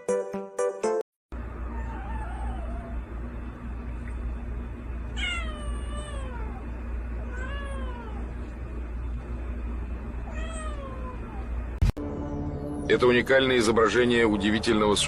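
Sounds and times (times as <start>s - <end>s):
cat meowing: 1.6s - 3.0s, 5.2s - 8.3s, 10.2s - 11.5s.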